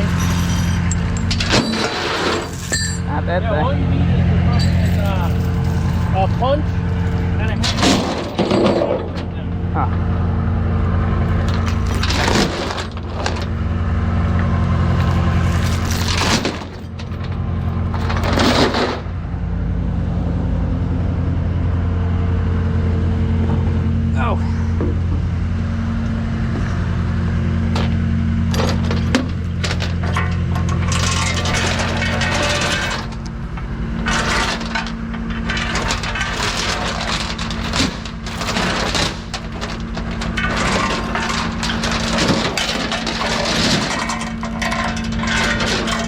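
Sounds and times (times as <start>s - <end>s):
chain rattling and clanking: 0.0s - 3.7s, 4.4s - 10.1s, 11.1s - 19.2s, 27.7s - 46.0s
engine idling: 0.0s - 46.0s.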